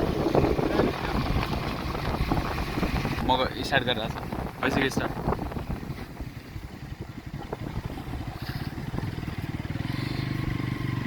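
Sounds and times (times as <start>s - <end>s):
small engine idling: 5.1s - 11.0s.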